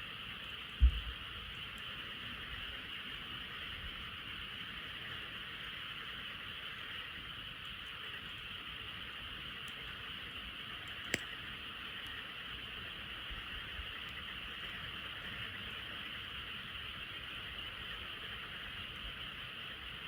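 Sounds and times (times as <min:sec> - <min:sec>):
campfire pop: 0:00.6 - 0:02.1, 0:09.6 - 0:19.3.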